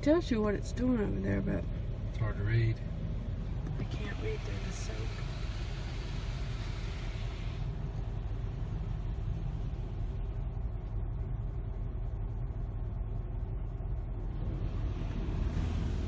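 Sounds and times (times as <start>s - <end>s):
car wash low rumble: 0.0s - 16.0s
spray hissing on car: 3.9s - 7.9s, 15.4s - 16.0s.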